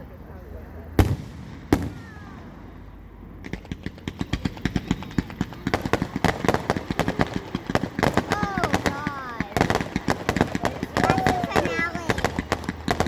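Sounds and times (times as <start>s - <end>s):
loud firework bang: 1.0s - 2.9s
firework cracks and pops: 1.0s - 13.0s.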